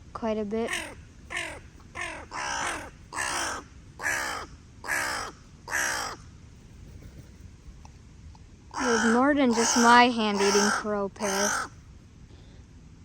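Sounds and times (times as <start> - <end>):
crow cawing: 0.7 - 6.2, 8.8 - 11.7.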